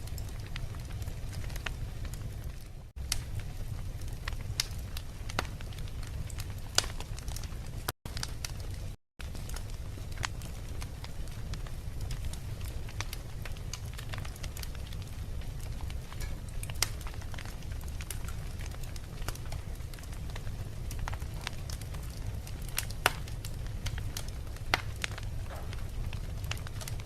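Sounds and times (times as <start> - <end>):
logs crackling and popping: 0.0 - 27.0
low rumble of flames: 0.0 - 27.0.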